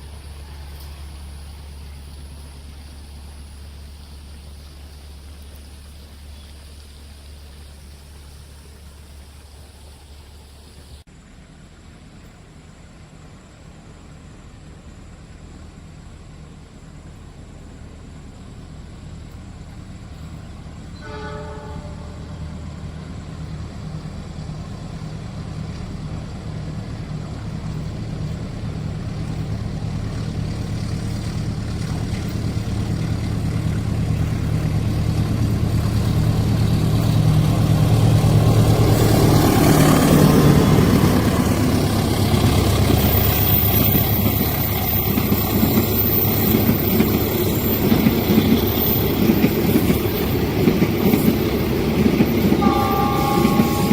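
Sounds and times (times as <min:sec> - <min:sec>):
train horn: 0:00.0 - 0:01.9, 0:20.9 - 0:22.9, 0:52.5 - 0:53.9
diesel locomotive engine drone: 0:00.0 - 0:53.9
train carriages rattling: 0:20.2 - 0:53.9.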